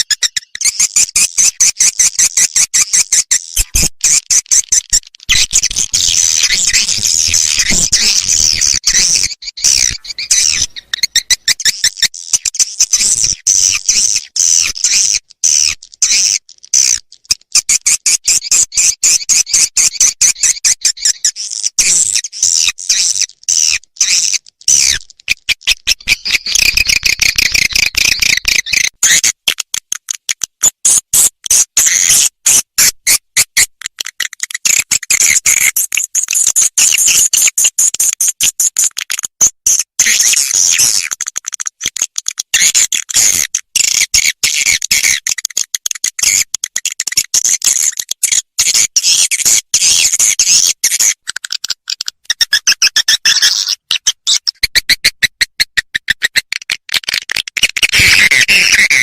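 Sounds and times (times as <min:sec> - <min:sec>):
swiftlet chirping twitter: 0:05.3 - 0:12.2.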